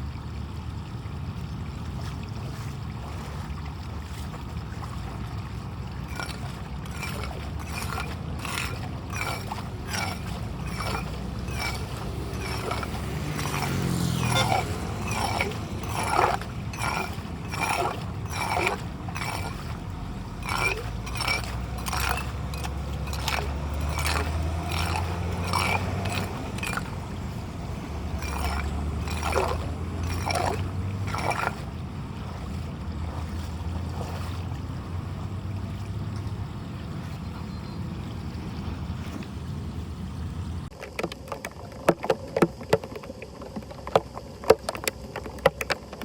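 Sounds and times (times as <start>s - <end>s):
water gurgling into a drain: 0.0s - 34.6s
sharp scraping strokes on a grate: 6.1s - 31.6s.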